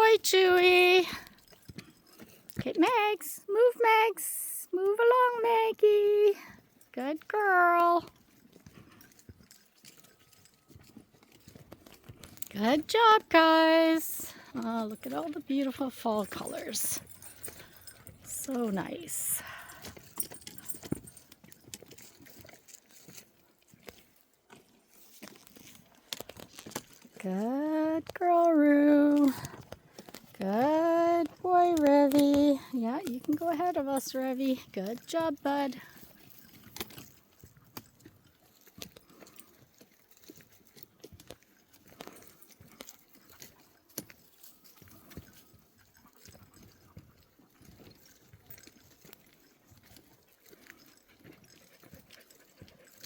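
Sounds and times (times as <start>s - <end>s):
faint footsteps on a trail: 0.0s - 53.0s
footsteps crunching on a trail: 14.2s - 27.7s.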